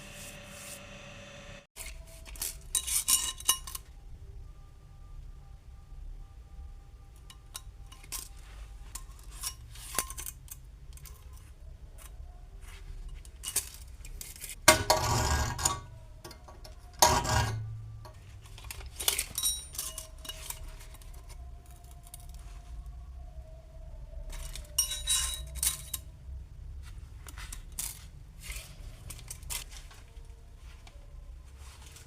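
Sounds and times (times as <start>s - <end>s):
metal clinks and knocks: 13.1s - 22.4s, 24.3s - 26.1s.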